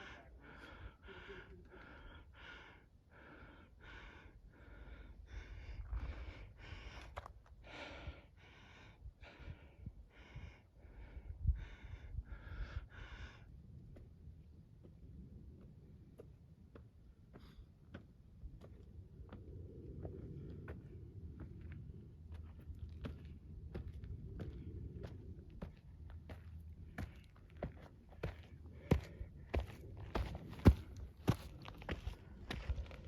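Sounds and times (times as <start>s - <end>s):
person panting: 0.0s - 13.5s, 27.8s - 33.0s.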